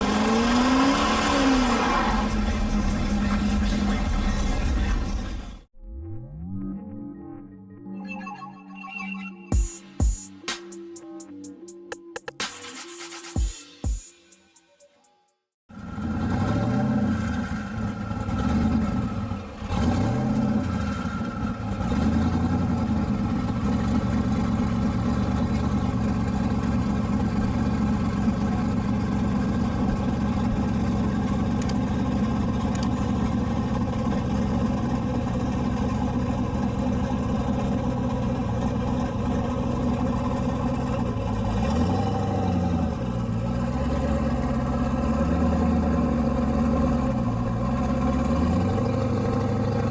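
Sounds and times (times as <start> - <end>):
car engine revving: 0.0 - 5.5, 15.8 - 49.9.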